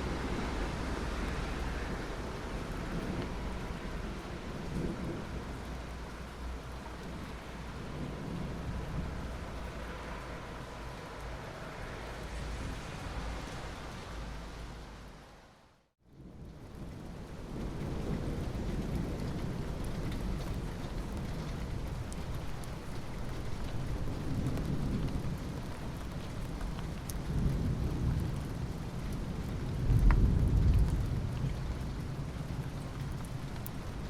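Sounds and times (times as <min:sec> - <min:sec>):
thunder rumbling: 0:00.0 - 0:11.0, 0:16.2 - 0:34.0
steady rain: 0:00.0 - 0:34.0.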